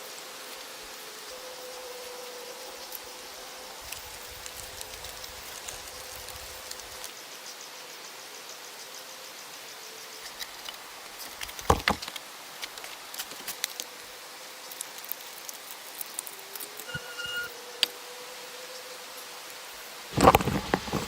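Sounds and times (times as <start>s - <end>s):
insects buzzing: 0.0s - 21.0s
light crackles: 3.8s - 7.2s, 10.2s - 17.9s, 20.1s - 21.0s.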